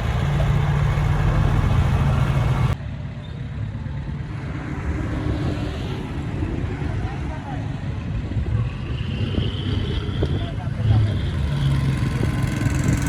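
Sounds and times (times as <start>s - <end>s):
diesel engine running loud: 0.0s - 2.8s.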